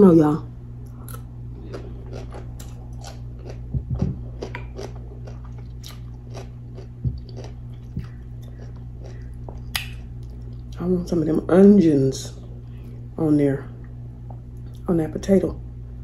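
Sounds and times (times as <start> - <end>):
steady low hum: 0.0 - 16.0
wet chewing and mouth clicks: 0.9 - 10.8.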